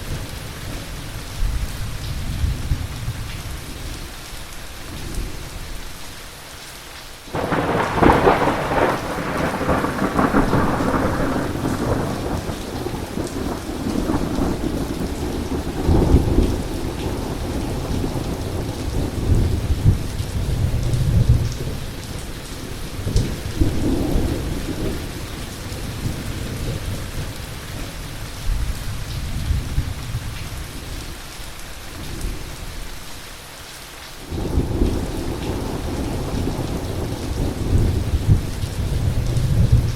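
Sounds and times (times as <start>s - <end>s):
steady rain: 0.0s - 39.9s
loud thunderclap: 7.3s - 21.8s
rumbling thunder: 7.3s - 30.4s, 34.3s - 39.9s.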